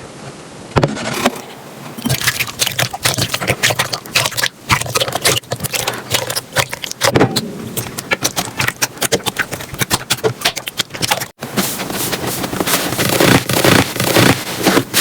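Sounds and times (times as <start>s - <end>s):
slime squished by hand: 2.0s - 11.3s, 12.7s - 15.0s.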